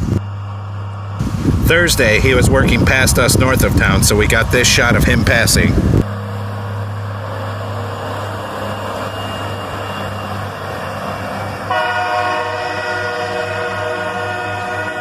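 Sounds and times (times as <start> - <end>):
train diesel engine rumble: 0.0 - 15.0
train air horn chord: 11.7 - 15.0.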